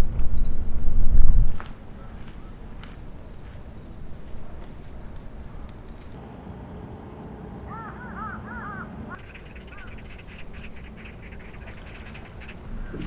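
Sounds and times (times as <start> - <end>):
bird calling: 0.0 - 0.9, 1.6 - 6.2, 7.6 - 13.0
steady low hiss: 0.0 - 7.6, 9.0 - 13.0
light irregular ticking: 9.2 - 13.0.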